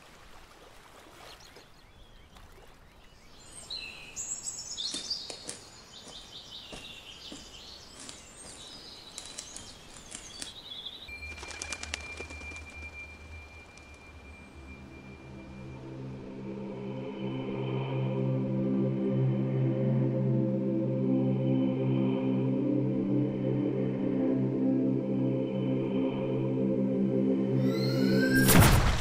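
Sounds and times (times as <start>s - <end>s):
birds chirping and calling: 1.3s - 13.4s
quick run of clicks: 9.1s - 10.6s, 11.2s - 13.0s
steady high tone: 11.1s - 19.8s, 24.4s - 28.6s
low hum: 11.1s - 29.0s.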